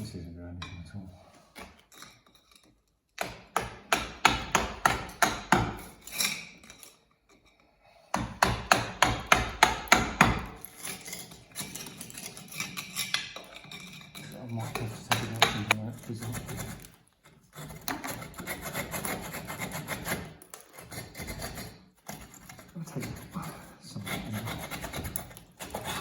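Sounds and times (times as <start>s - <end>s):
hammer strikes: 3.2s - 5.9s, 8.1s - 10.6s, 14.7s - 15.8s.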